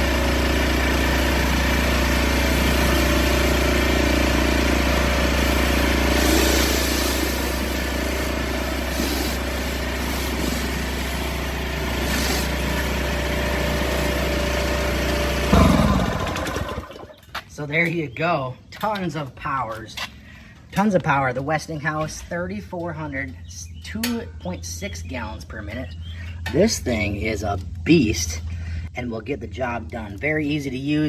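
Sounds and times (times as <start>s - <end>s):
pressure washer engine running: 0.0s - 17.3s
pressure washer spray hiss: 2.4s - 14.3s.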